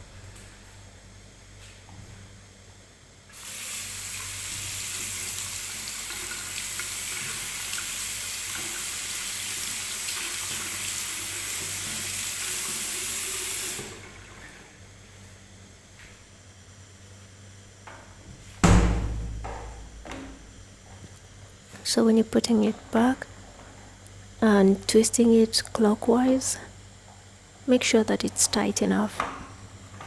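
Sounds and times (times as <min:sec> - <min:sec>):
tap water running: 0:03.3 - 0:14.8.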